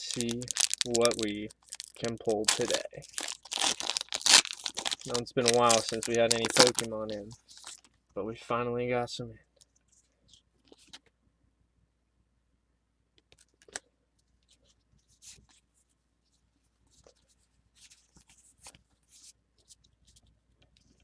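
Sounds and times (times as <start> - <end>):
cards and wrapper rustling: 0.0 - 7.9
crinkles and taps: 0.0 - 8.0.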